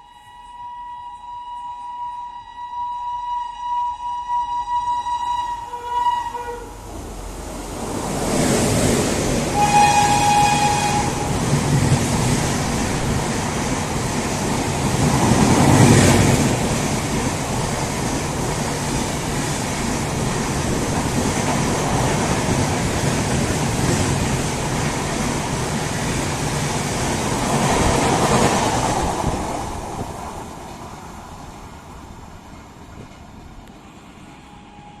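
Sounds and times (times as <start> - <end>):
train horn blast: 0.0 - 6.8, 9.5 - 11.6, 34.3 - 35.0
train wheels rushing on rails: 6.3 - 35.0.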